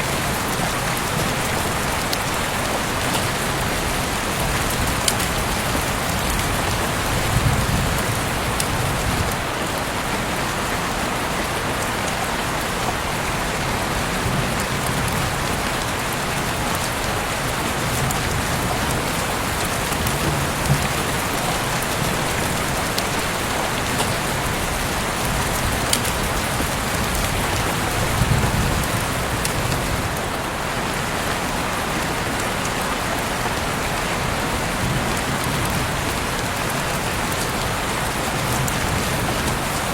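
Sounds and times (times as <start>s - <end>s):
heavy rain: 0.0s - 39.9s
raindrop ticks: 0.1s - 9.4s, 17.8s - 30.3s.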